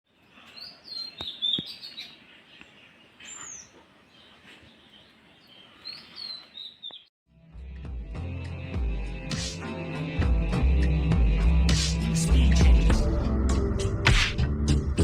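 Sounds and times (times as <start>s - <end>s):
small birds chirping: 0.1s - 7.1s.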